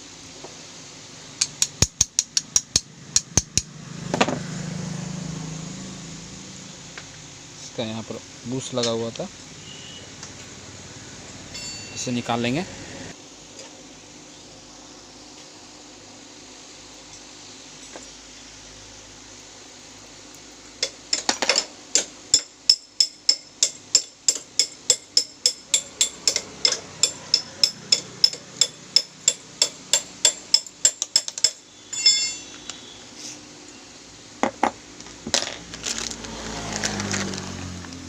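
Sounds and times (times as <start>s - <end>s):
ringing metal clink: 11.5s - 12.1s, 30.3s - 32.7s
metal-on-metal tapping: 20.8s - 32.6s.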